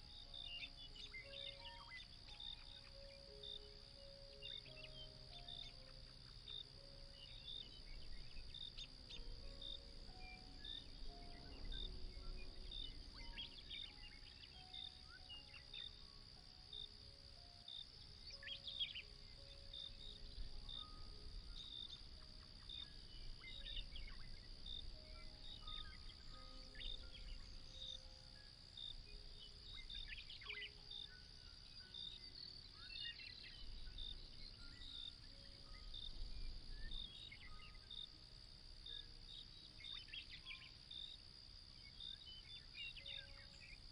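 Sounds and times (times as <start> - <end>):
crickets chirring: 0.0 - 43.9
soft slow background music: 0.0 - 43.9.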